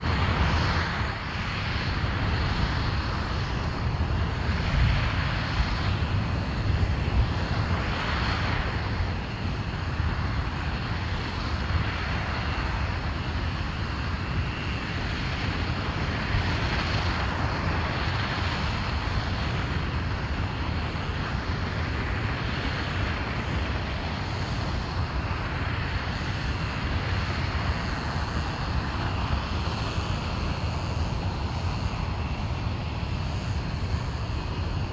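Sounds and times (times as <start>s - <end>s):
rocket engine deep roar: 12.9s - 34.9s.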